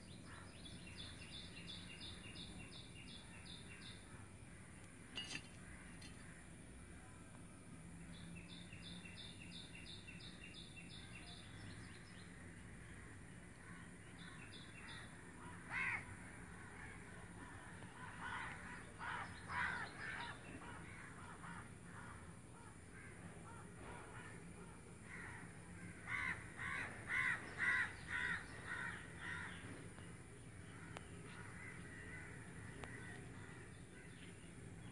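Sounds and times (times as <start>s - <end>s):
low background noise: 0.0s - 34.9s
bird calls: 8.2s - 34.9s.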